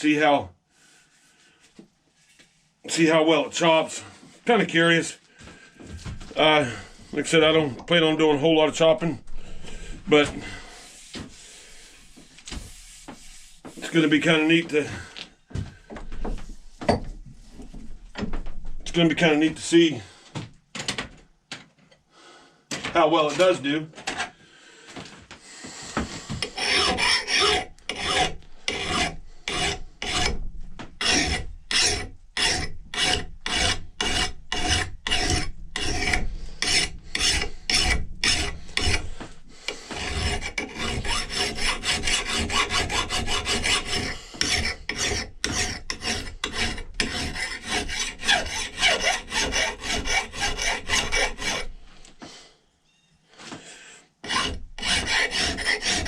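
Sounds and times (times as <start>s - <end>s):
sanding wood by hand: 10.6s - 14.5s, 26.1s - 30.3s, 31.0s - 51.7s, 54.3s - 56.0s.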